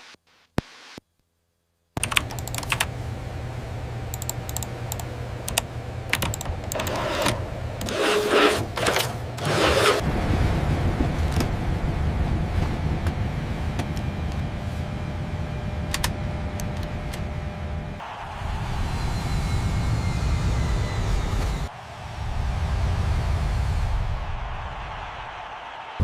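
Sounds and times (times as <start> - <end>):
crackling clicks: 2.0 - 2.9, 4.1 - 8.1
piston aircraft engine rumbling: 2.0 - 24.6.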